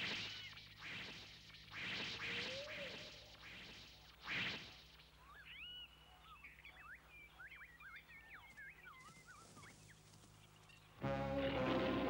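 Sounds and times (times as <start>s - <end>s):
faint bird chirps and whistles: 4.5s - 10.9s
low steady hum: 9.4s - 12.0s.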